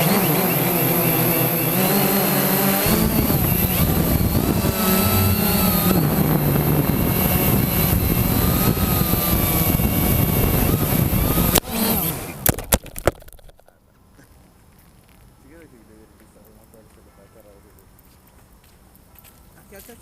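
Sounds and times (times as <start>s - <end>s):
drone motors whining: 0.0s - 13.6s
drone crashing: 0.5s - 13.6s
wind noise: 1.1s - 13.6s.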